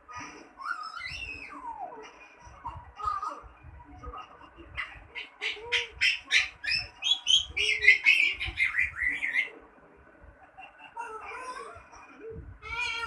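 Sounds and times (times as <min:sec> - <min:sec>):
parrot chirping and whistling: 0:00.6 - 0:01.6, 0:06.0 - 0:09.5.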